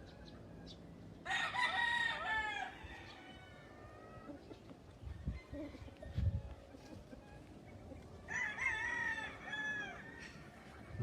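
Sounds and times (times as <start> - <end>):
chickens clucking and crowing: 0.0 - 11.0
rooster crowing: 1.2 - 3.8, 8.3 - 10.8.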